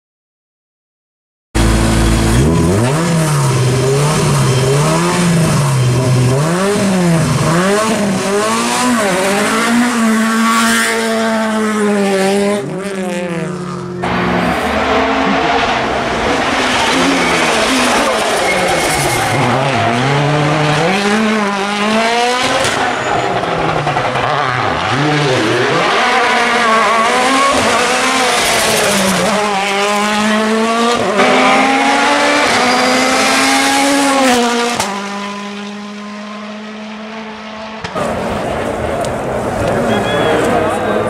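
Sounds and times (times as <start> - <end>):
rally car engine revving: 1.6 - 41.0.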